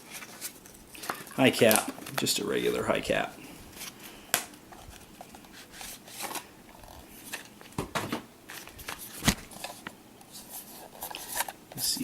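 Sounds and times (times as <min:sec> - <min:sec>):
packaging clicks and crinkles: 0:00.0 - 0:07.8.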